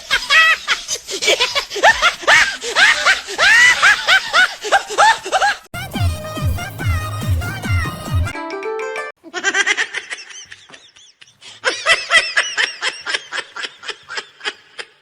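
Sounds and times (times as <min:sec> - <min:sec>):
high-pitched laughter: 0:00.0 - 0:08.3, 0:09.2 - 0:15.0.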